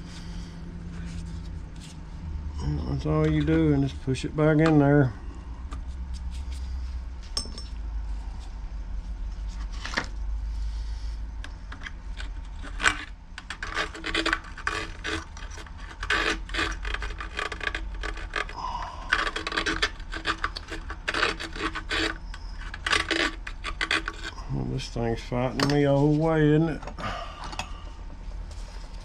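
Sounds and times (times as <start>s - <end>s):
plastic and rubber scraping: 12.1s - 24.4s.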